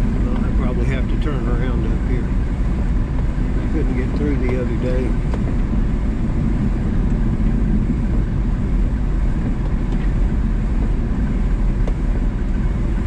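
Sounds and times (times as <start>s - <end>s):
small truck engine droning: 0.0s - 13.0s.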